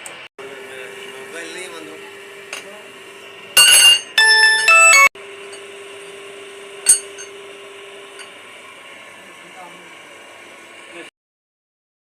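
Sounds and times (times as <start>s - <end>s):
electronic chime jingle: 4.2s - 5.1s.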